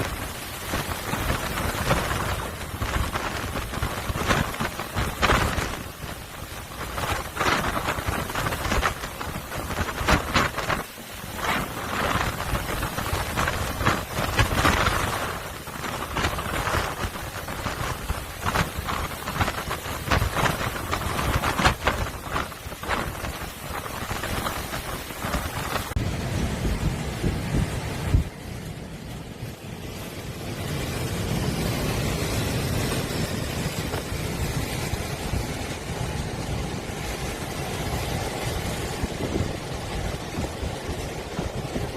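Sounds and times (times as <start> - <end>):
rushing water: 0.0 - 41.9
waves crashing on breakwater: 0.0 - 41.9.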